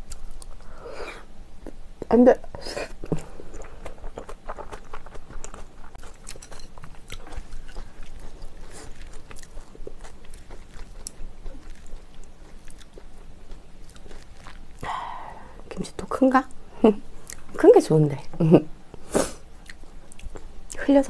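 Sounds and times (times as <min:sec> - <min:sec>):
person chewing food: 0:00.0 - 0:00.8, 0:02.8 - 0:15.0, 0:18.9 - 0:20.8.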